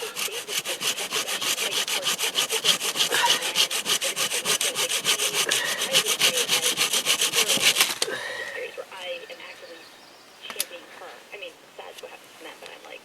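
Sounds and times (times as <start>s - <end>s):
hand saw cutting wood: 0.0s - 8.6s.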